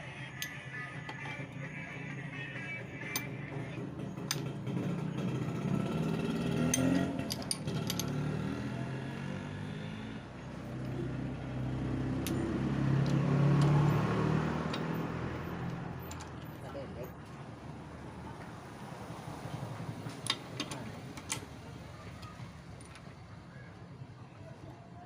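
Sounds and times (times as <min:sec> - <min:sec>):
vehicle engine running: 0:00.0 - 0:24.8
sharp metallic clicks: 0:06.2 - 0:08.4, 0:12.2 - 0:16.6.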